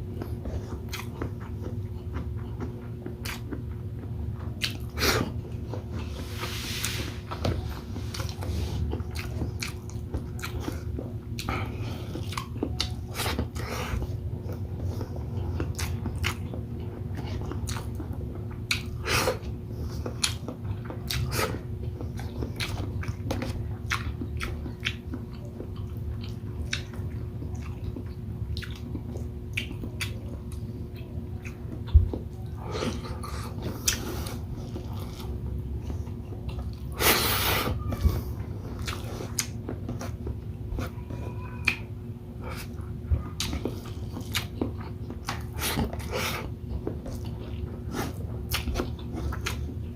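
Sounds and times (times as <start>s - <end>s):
person chewing food: 0.0s - 49.9s
steady low hum: 0.0s - 49.9s.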